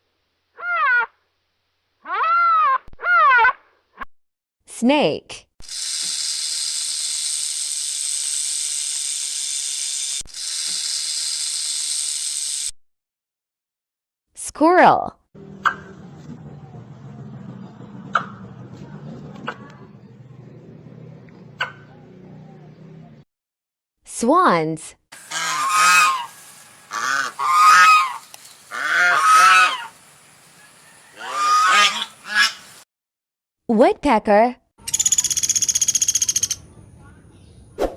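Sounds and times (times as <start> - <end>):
snake hissing: 25.2 - 32.8
swans honking: 25.2 - 32.8.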